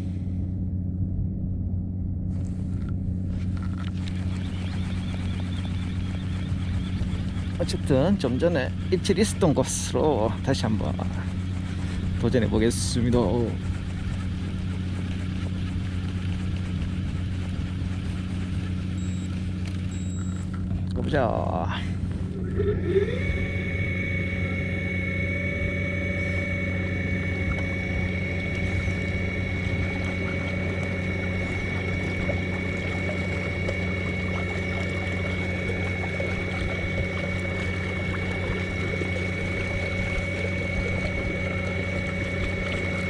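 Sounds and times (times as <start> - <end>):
electric motor whining: 19.0 - 20.4, 22.9 - 43.0.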